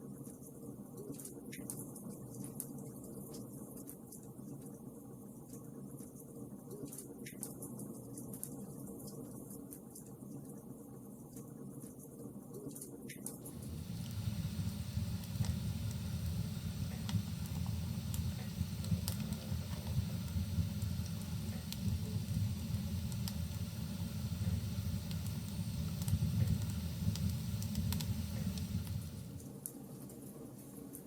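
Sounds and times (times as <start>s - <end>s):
wood fire burning: 13.4s - 29.5s
crackles and pops from logs: 13.6s - 29.4s.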